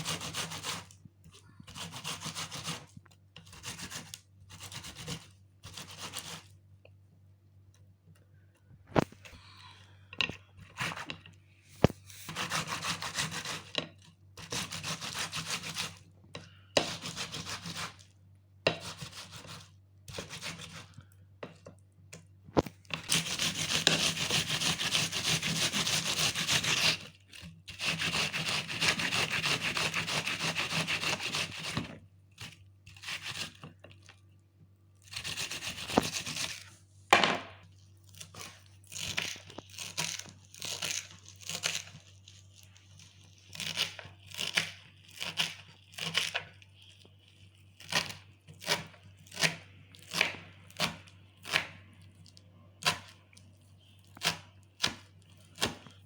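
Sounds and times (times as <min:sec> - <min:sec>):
food grating strokes: 0:00.0 - 0:01.0, 0:01.7 - 0:06.6, 0:12.0 - 0:13.7, 0:14.4 - 0:16.0, 0:16.8 - 0:18.1, 0:18.8 - 0:21.0, 0:23.0 - 0:33.6, 0:35.0 - 0:36.8.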